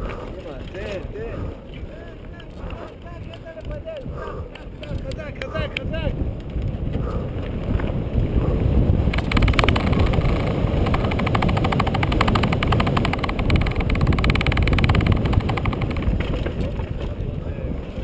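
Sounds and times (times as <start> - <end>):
tyres and wind rumble: 0.0 - 18.0
bike frame rattling: 7.5 - 17.2
freewheel hub clicking: 9.0 - 16.7.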